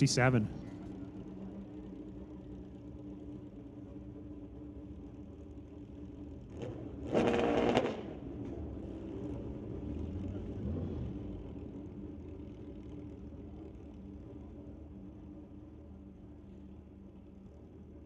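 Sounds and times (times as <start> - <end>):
steady engine hum: 0.0 - 18.0.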